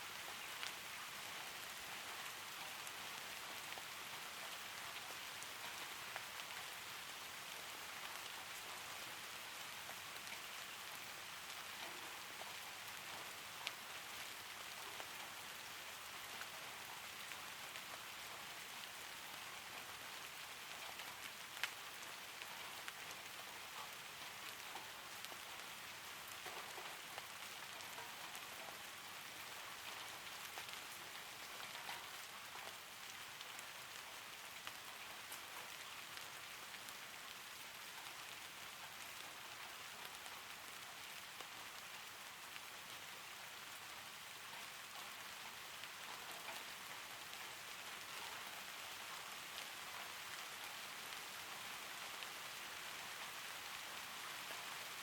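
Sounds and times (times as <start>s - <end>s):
steady rain falling: 0.0s - 55.0s
ticks of raindrops: 0.0s - 55.0s.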